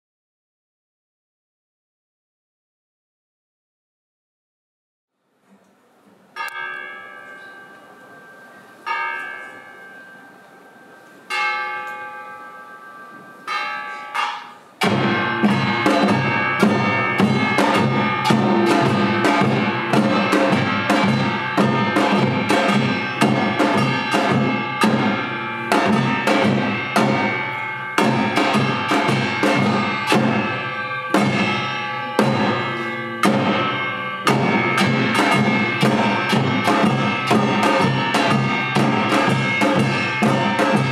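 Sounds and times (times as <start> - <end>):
metal gong strokes ringing: 6.4 - 40.9
drum and gong ensemble: 13.5 - 40.9.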